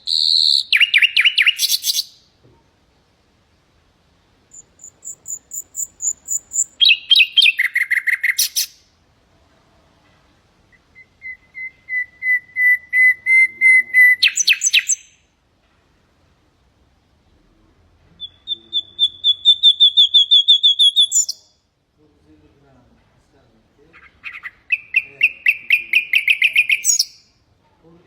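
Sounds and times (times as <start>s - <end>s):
nightingale singing: 0.0s - 2.3s, 4.5s - 8.9s, 10.7s - 15.3s, 18.1s - 21.7s, 23.9s - 27.4s.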